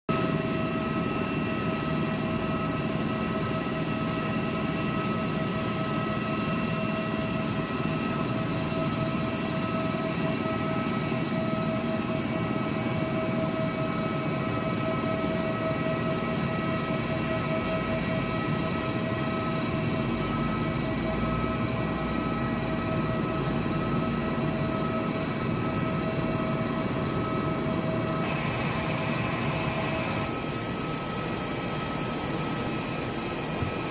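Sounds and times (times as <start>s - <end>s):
jet airliner drone: 0.1s - 33.9s
high whine: 19.6s - 33.9s.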